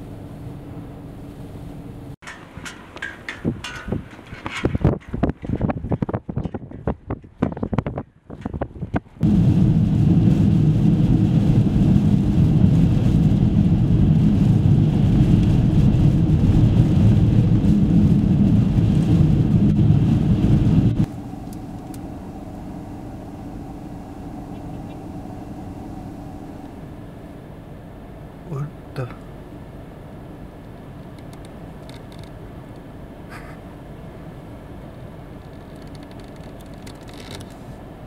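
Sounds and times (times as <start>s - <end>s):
car engine and tyres rumbling: 0.0s - 38.0s
quiet outdoor noise: 21.0s - 38.0s.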